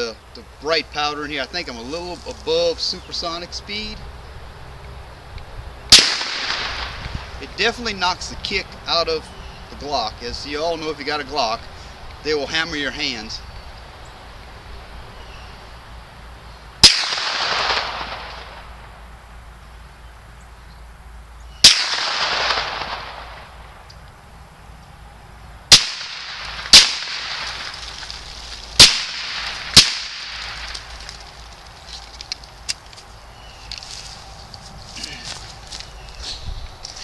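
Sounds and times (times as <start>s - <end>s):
suppressed pistol shots: 5.9s - 7.2s, 16.8s - 18.7s, 21.6s - 23.6s, 25.7s - 27.8s, 28.8s - 30.9s.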